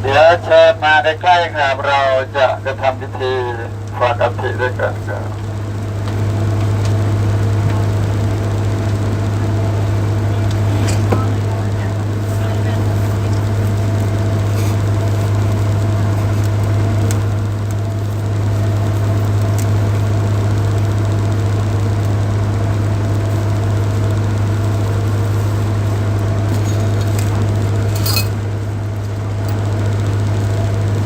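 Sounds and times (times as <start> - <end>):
boat engine droning: 0.0 - 31.0
light clink: 27.9 - 28.4.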